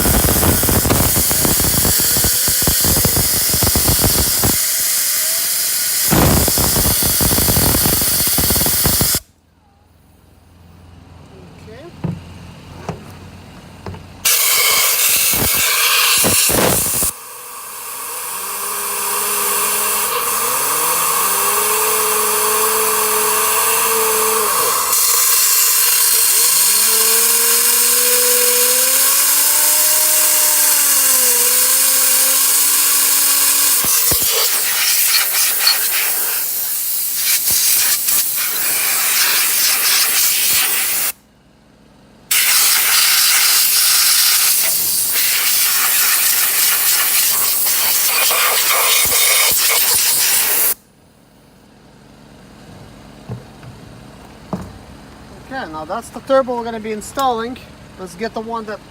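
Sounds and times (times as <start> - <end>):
compressed air hissing: 0.0 - 9.3, 14.2 - 41.2, 42.3 - 50.8
turbocharger wheel whining: 0.0 - 9.3, 14.2 - 41.2.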